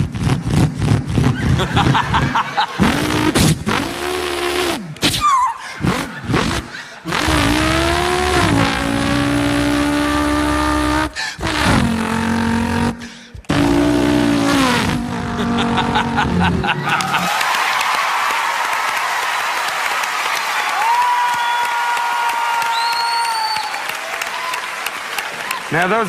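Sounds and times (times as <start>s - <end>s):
man imitating car engines: 0.0s - 17.2s
applause: 16.8s - 26.0s.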